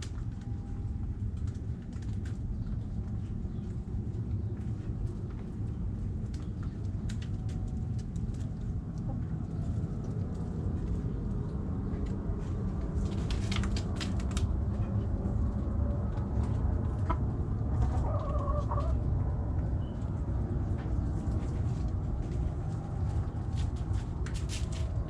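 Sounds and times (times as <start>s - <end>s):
low rumble: 0.0s - 25.0s
hens clucking: 16.2s - 19.3s.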